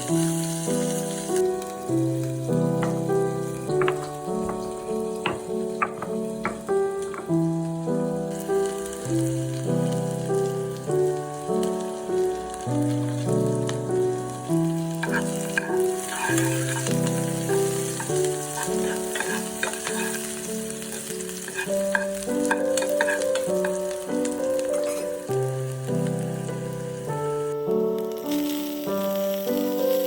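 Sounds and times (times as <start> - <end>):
food sizzling in a pan: 0.0 - 30.0
instrumental background music: 0.0 - 30.0
utensil scraping and clicking: 3.7 - 7.3, 15.0 - 23.8, 24.7 - 25.1.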